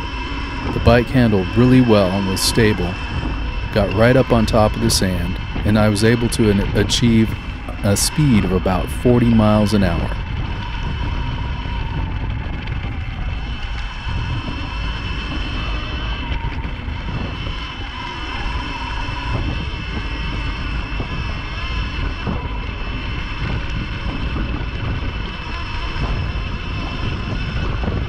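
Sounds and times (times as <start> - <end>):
electric motor whine: 0.0 - 28.0
wind buffeting microphone: 0.0 - 28.0.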